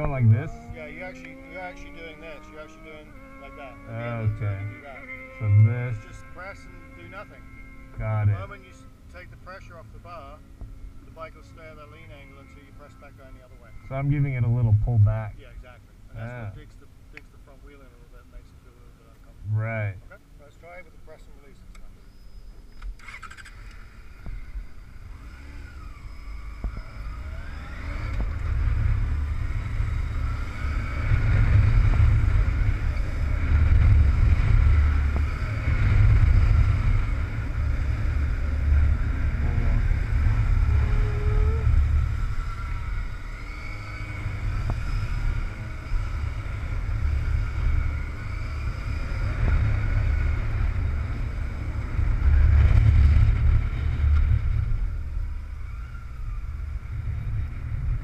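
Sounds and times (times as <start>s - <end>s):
wind rumble on microphone: 0.0s - 0.8s, 13.9s - 15.4s, 24.2s - 58.0s
motorcycle engine running: 0.0s - 15.2s, 23.0s - 58.0s.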